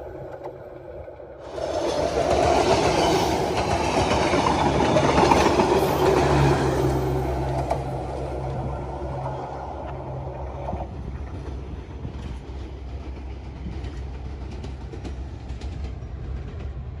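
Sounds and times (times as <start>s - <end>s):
passing train rumble and clatter: 0.0s - 17.0s
faint clicks from rails: 7.4s - 17.0s.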